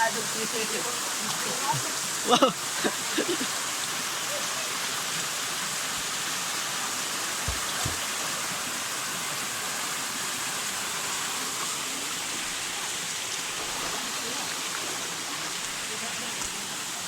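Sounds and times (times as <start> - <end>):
stream water running: 0.0 - 17.0.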